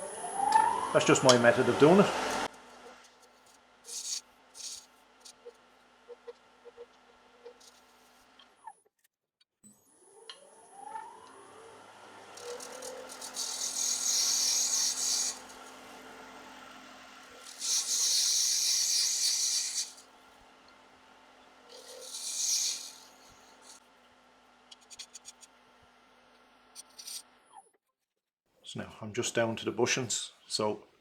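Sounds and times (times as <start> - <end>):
gouge cutting with hissing shear: 0.0 - 2.5, 3.9 - 4.8, 12.2 - 20.4, 21.6 - 23.8
wood lathe motor hum: 0.0 - 3.1, 10.2 - 23.8.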